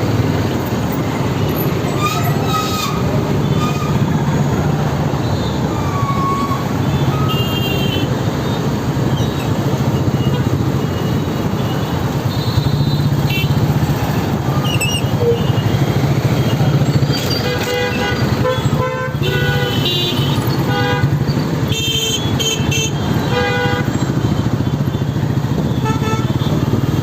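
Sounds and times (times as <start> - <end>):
city traffic: 0.0 - 27.0
vehicle horns honking: 1.6 - 4.3, 5.2 - 9.4, 10.0 - 13.7, 16.5 - 26.7.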